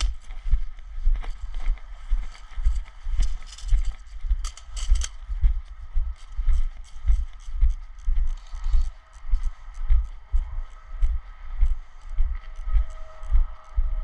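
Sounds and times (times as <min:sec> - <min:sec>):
footsteps walking: 0:00.0 - 0:14.0.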